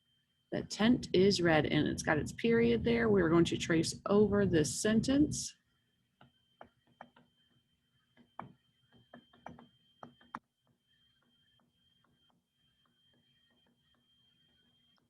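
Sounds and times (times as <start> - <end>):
writing tool tapping and scratching: 6.2 - 15.0.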